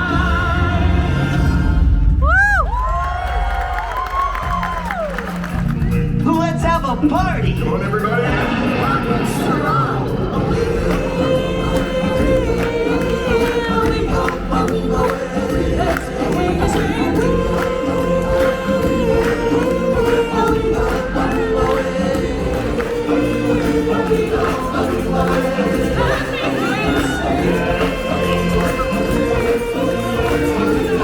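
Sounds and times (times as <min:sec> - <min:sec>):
choir singing: 0:00.0 - 0:02.2, 0:08.1 - 0:31.0
instrumental backing music: 0:04.1 - 0:31.0.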